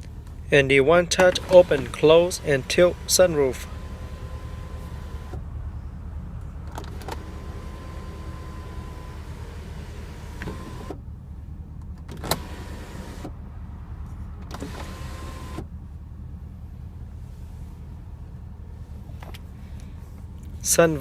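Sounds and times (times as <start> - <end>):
steady low hum: 0.0 - 21.0
electric sunroof motor running: 1.1 - 5.4, 6.7 - 11.0, 12.2 - 13.3, 14.4 - 15.8.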